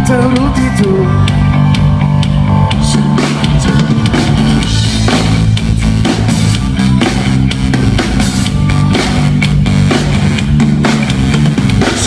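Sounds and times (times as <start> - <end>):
bass guitar: 0.0 - 12.0
distorted electric guitar: 0.0 - 12.0
drum kit: 0.0 - 12.0.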